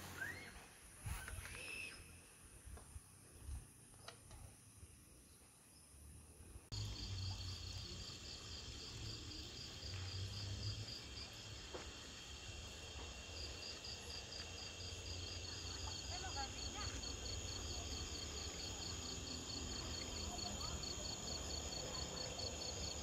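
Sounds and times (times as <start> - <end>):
insects chirring: 4.8 - 23.0.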